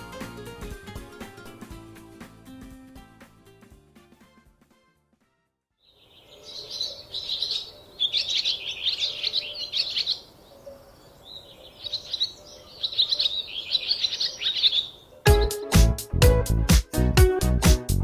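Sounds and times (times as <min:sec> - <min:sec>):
songbird singing: 0:05.8 - 0:16.1.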